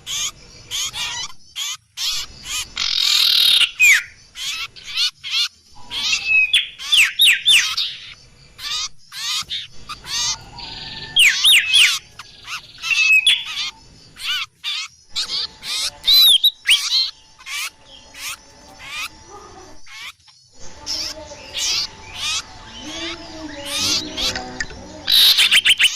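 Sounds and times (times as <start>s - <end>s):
small birds chirping and whistling: 0.0s - 25.9s.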